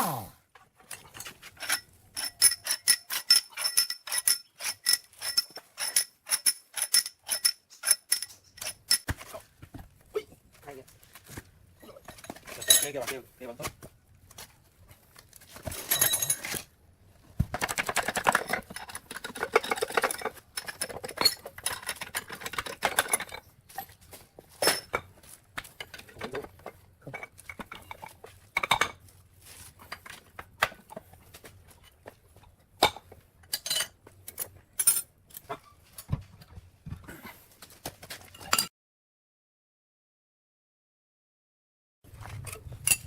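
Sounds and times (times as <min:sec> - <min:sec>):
metal tools clinking: 0:00.9 - 0:09.1, 0:11.8 - 0:13.1, 0:15.6 - 0:16.7, 0:18.3 - 0:25.1, 0:33.4 - 0:35.8, 0:42.4 - 0:43.0.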